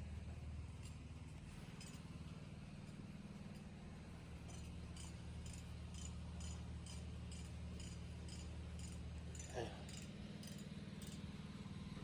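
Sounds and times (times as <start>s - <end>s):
engine idling hum: 9.0s - 12.0s.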